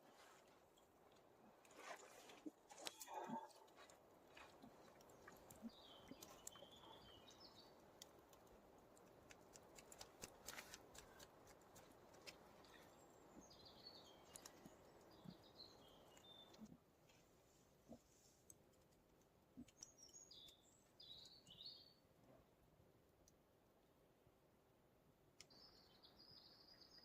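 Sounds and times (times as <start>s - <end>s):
faint scattered clicks: 2.8s - 12.8s
bird chirping: 4.8s - 7.8s, 12.7s - 16.8s, 19.6s - 22.0s, 25.4s - 27.0s.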